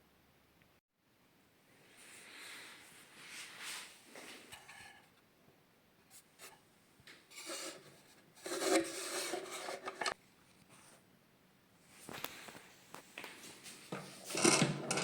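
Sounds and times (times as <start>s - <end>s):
wooden drawer scraping in runners: 8.4s - 10.2s, 14.0s - 15.0s.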